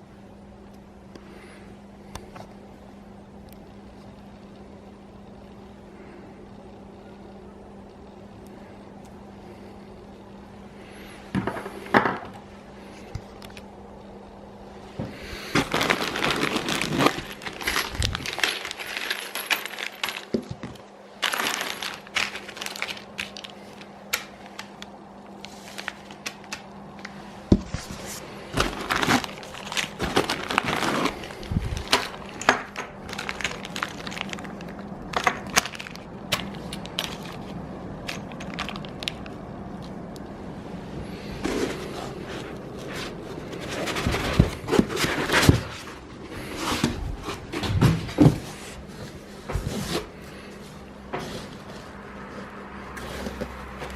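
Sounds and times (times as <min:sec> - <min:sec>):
rustling: 0:15.1 - 0:23.9, 0:25.4 - 0:32.4
small metal parts clinking: 0:15.8 - 0:23.5.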